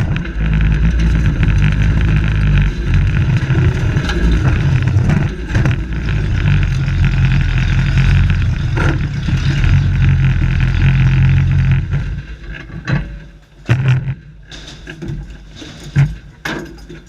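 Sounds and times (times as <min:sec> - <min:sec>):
truck engine running loud: 0:00.0 - 0:12.6.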